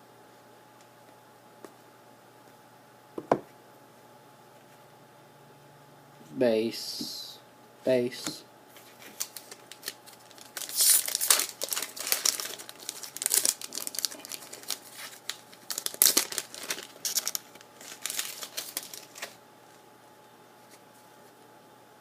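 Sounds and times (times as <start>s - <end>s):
wrapper crinkling and tearing: 8.8s - 19.4s.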